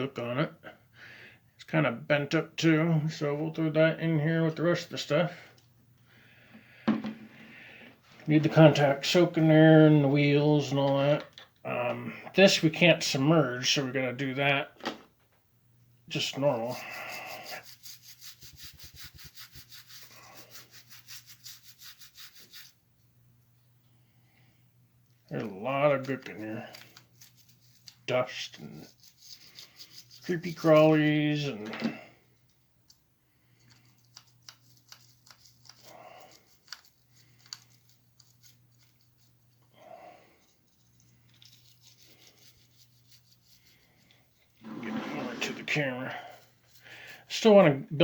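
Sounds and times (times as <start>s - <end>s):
hand tool scraping grime: 16.1s - 22.7s, 25.4s - 31.9s, 40.4s - 47.4s
rapid scrubbing: 16.1s - 22.8s, 25.4s - 31.6s, 40.7s - 47.5s.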